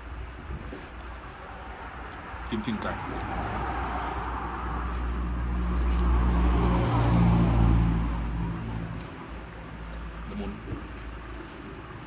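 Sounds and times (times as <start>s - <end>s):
vehicle engine passing: 1.5s - 10.8s.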